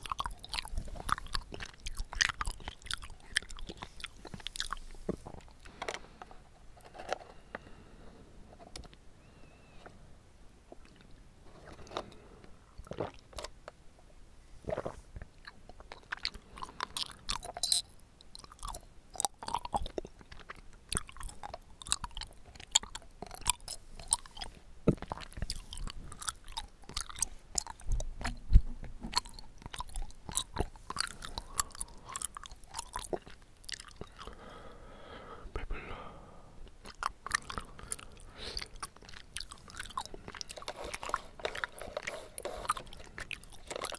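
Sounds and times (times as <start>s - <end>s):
chewing mouth clicks and smacks: 0.0s - 5.6s, 14.7s - 28.4s, 29.0s - 34.4s, 36.6s - 43.9s.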